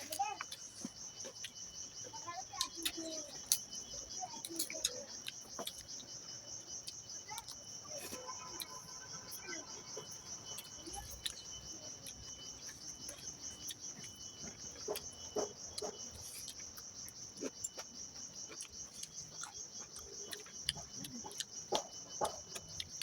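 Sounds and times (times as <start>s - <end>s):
crickets chirping: 0.0s - 23.0s
person eating: 4.4s - 6.0s, 6.8s - 23.0s.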